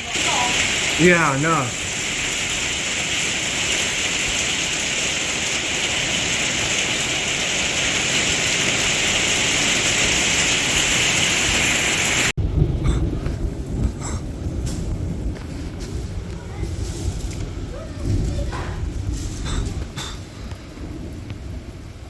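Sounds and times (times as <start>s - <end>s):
torrential rain pouring: 0.0s - 22.0s
low rumble: 12.4s - 22.0s.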